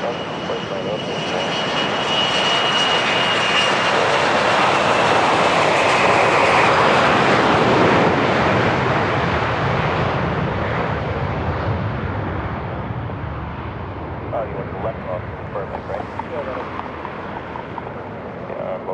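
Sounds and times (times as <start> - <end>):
high whine: 0.0 - 5.3, 14.3 - 18.9
jet engines roaring past: 0.0 - 18.9.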